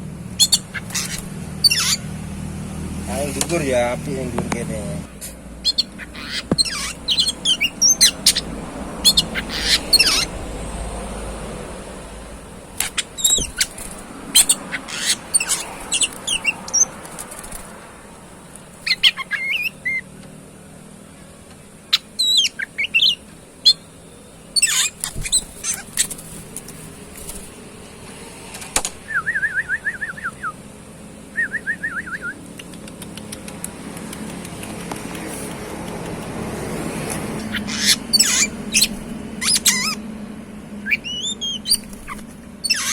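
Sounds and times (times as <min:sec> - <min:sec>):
bird singing and calling: 0:00.2 - 0:02.1, 0:03.1 - 0:17.0, 0:18.8 - 0:20.2, 0:21.2 - 0:26.2, 0:37.3 - 0:40.1, 0:40.8 - 0:42.9
bird rapid trills: 0:00.2 - 0:02.3, 0:05.6 - 0:20.2, 0:21.7 - 0:27.8, 0:37.2 - 0:40.1, 0:40.8 - 0:42.9.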